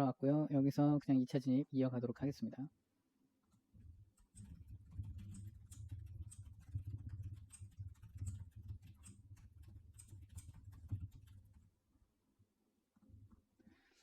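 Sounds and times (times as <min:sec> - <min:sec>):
mouse and keyboard clicks: 0:04.2 - 0:11.5.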